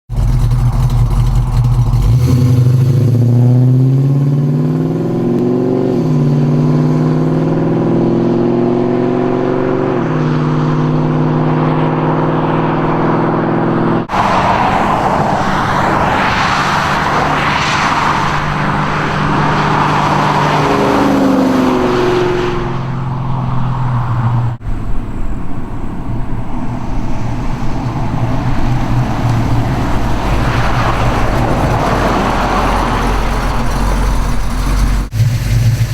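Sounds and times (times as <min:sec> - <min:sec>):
car engine accelerating through gears: 0:00.1 - 0:25.1, 0:26.0 - 0:35.9
road and wind noise: 0:00.1 - 0:35.9.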